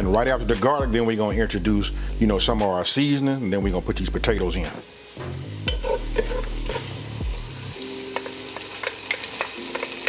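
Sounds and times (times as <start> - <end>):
onions sizzling with pops: 2.3 - 10.0
wooden spatula scraping pan: 5.7 - 7.0.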